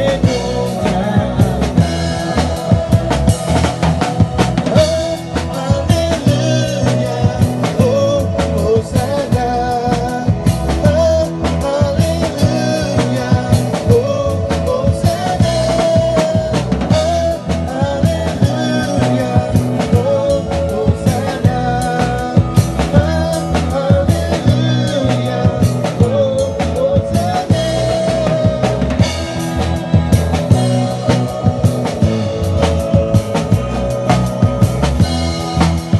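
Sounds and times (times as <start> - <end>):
bass: 0.0 - 35.9
drum kit beat: 0.0 - 35.9
person singing: 0.0 - 35.9.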